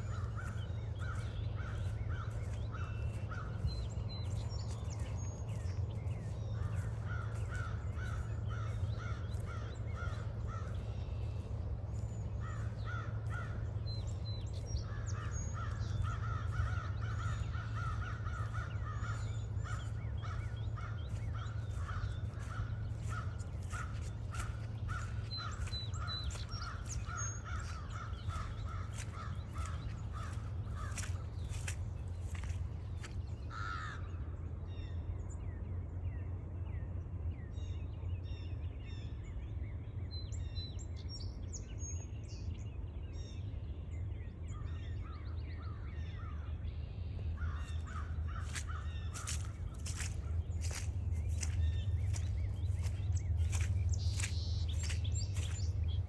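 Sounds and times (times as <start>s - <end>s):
small birds chirping: 0.0s - 33.6s, 47.4s - 56.0s
footsteps on trail: 0.0s - 33.8s, 47.4s - 56.0s.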